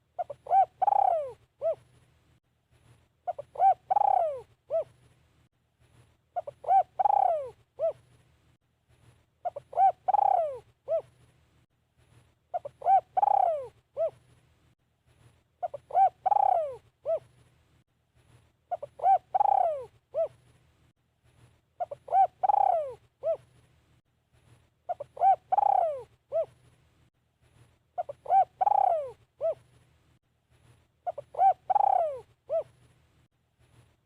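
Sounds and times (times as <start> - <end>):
dove cooing: 0.1 - 1.9, 3.2 - 5.0, 6.4 - 8.1, 9.4 - 11.2, 12.5 - 14.2, 15.6 - 17.3, 18.7 - 20.4, 21.8 - 23.5, 24.9 - 26.6, 28.0 - 29.7, 31.0 - 32.8.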